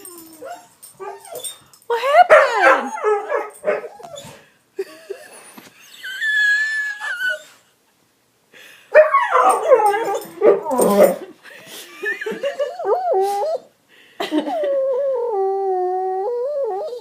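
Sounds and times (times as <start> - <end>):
dog whining and whimpering: 0.0 - 1.7, 3.9 - 4.5, 5.1 - 7.7, 9.1 - 11.3, 12.5 - 13.7, 14.5 - 17.0.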